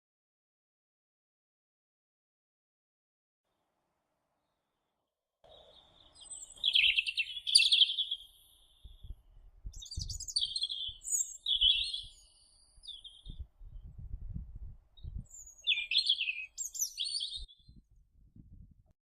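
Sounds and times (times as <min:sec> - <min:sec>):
bird chirping: 0:05.4 - 0:14.1, 0:15.0 - 0:17.8.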